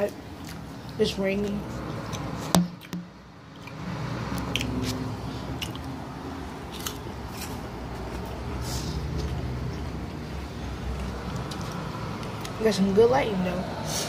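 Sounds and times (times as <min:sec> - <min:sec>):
sharp knock: 0:02.5 - 0:03.1
crunchy chewing: 0:03.5 - 0:12.6.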